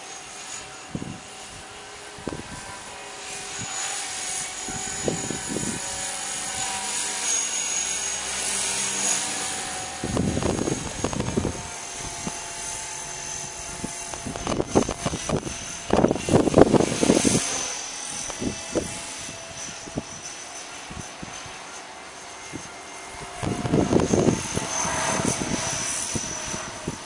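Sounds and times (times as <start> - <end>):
rc helicopter rotor whine: 0.0 - 27.0
wind buffeting microphone: 0.6 - 7.2, 8.3 - 21.7, 22.4 - 27.0.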